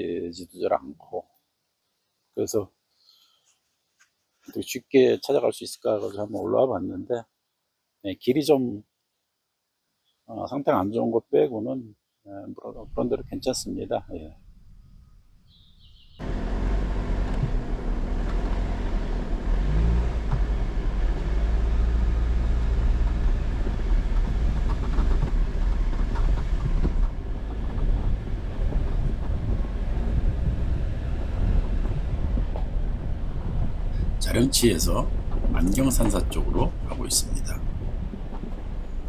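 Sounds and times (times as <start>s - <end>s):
car engine running: 16.2s - 39.0s
tyres rumbling over gravel: 16.2s - 39.0s.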